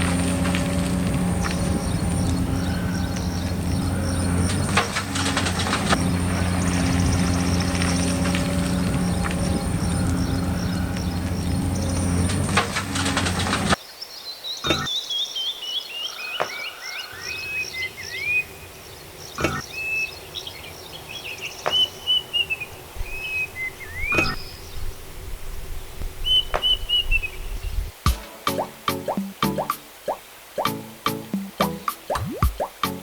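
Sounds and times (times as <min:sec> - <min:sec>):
loud mechanical running noise: 0:00.0 - 0:13.8
birds singing: 0:00.0 - 0:28.0.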